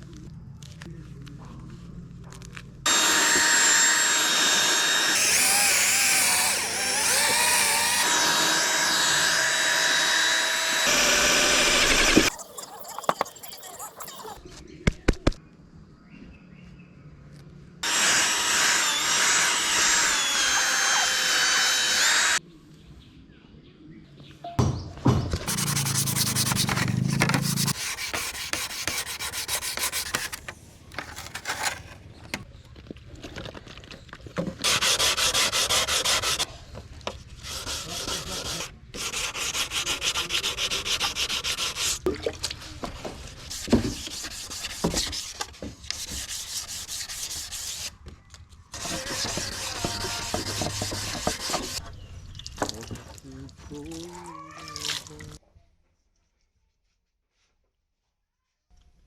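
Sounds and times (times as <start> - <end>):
sandpaper scraping panels: 5.2 - 8.4, 25.5 - 32.4, 43.2 - 47.9, 48.8 - 51.8.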